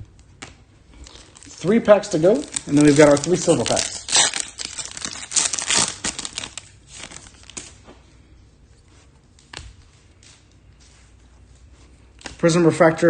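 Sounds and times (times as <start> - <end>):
foil wrapper crinkling: 0.9 - 8.0.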